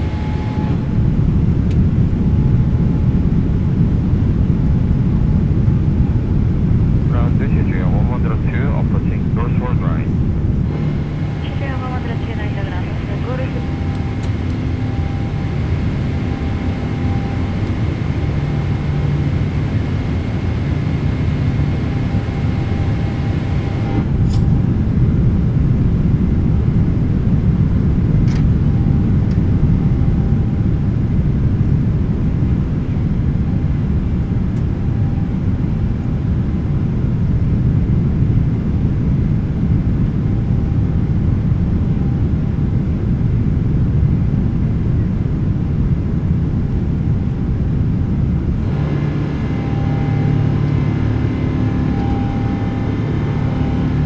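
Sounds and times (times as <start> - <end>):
airplane cabin engine rumble: 0.0 - 54.0
thin high whine: 48.6 - 54.0.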